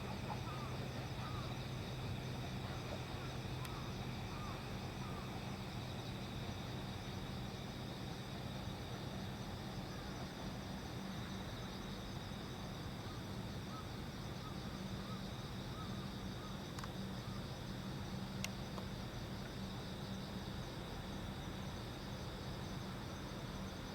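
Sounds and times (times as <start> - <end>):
crickets chirping: 0.0 - 23.9
faint sharp clicks: 3.6 - 3.8, 16.7 - 17.0, 18.4 - 19.6.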